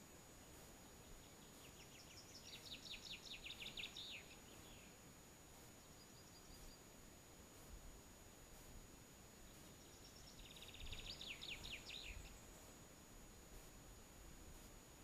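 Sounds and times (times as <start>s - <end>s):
faint songbird singing: 0.0s - 15.0s.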